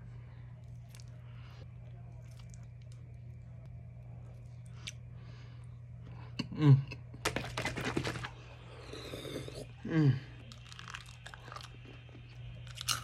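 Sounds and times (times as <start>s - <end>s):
steady low hum: 0.0s - 13.0s
close-up chewing: 2.0s - 3.2s.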